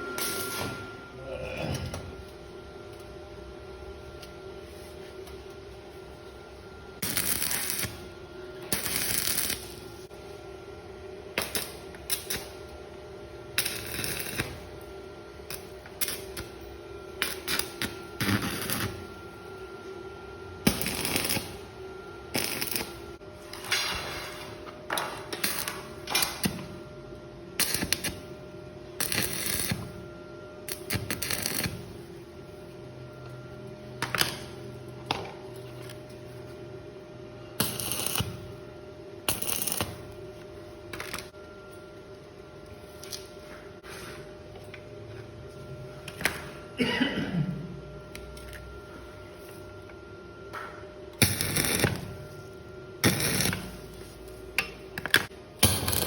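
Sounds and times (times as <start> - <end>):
steady hum: 0.0 - 56.0
welding arc crackling: 0.2 - 0.6, 7.0 - 10.1, 11.3 - 12.7, 13.5 - 16.6, 17.2 - 19.2, 20.6 - 23.8, 25.1 - 26.7, 27.6 - 28.3, 29.0 - 30.0, 30.6 - 32.0, 37.6 - 38.6, 39.2 - 40.2, 51.2 - 56.0.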